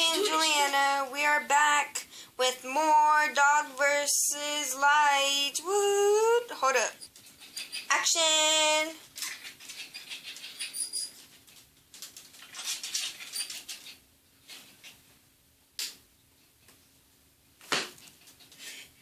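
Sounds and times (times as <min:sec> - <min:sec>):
dog scratching and scuffling: 0:09.2 - 0:14.7.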